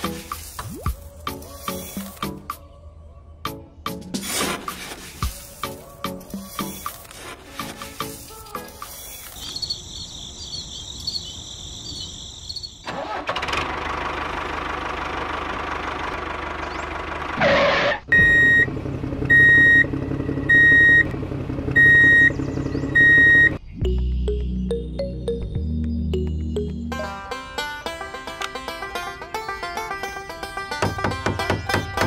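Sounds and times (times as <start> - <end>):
vehicle engine running: 13.1 - 23.6
reversing alarm beeps: 18.1 - 18.7, 19.3 - 19.9, 20.5 - 21.0, 21.8 - 22.3, 22.9 - 23.6.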